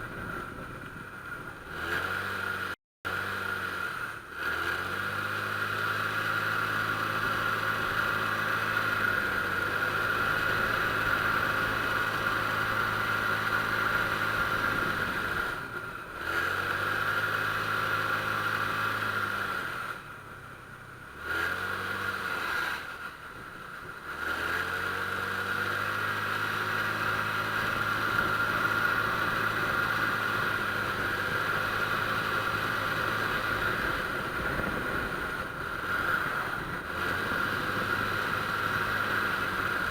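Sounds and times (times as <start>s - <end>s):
scooter engine revving: 0.0s - 39.9s.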